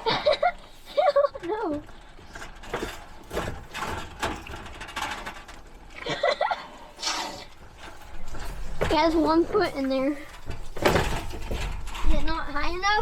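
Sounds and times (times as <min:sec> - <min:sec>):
bucket knocking and rattling: 0:00.0 - 0:13.0.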